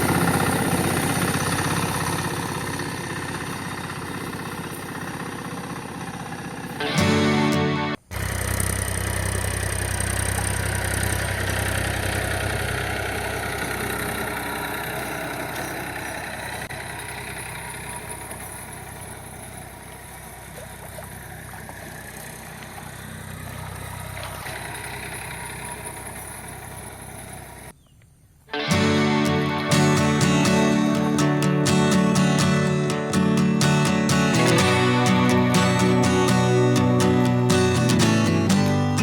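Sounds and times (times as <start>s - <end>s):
engine idling: 0.0s - 27.7s, 28.6s - 39.0s.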